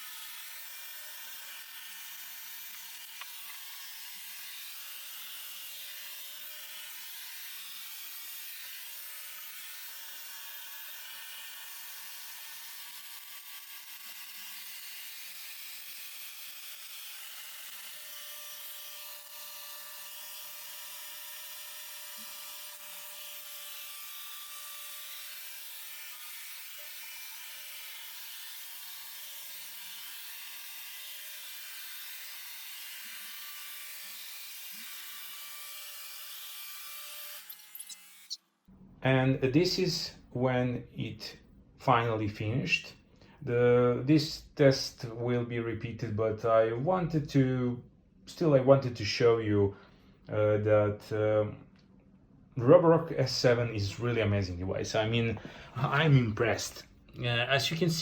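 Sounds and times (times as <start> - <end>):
robot vacuum whirring: 37.4 - 38.4.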